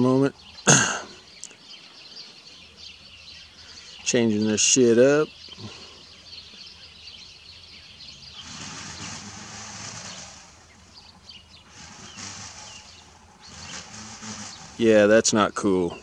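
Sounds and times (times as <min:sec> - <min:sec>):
faint bird chirps: 0:00.0 - 0:09.3
outdoor background noise: 0:00.0 - 0:16.0.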